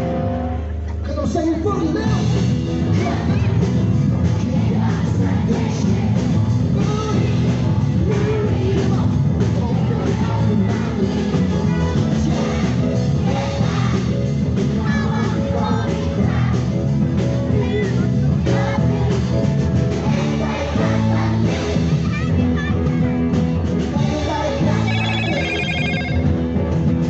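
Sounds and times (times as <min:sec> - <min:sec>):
live band playing: 0:00.0 - 0:27.0
voices singing: 0:02.8 - 0:16.8, 0:17.5 - 0:22.0, 0:23.9 - 0:26.3.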